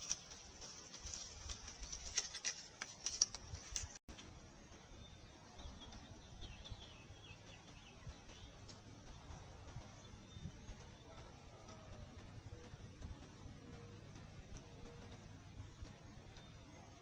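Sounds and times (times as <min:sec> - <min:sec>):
small animals feeding clicks: 0:00.0 - 0:04.2, 0:05.6 - 0:17.0
outdoor hiss: 0:00.0 - 0:10.8.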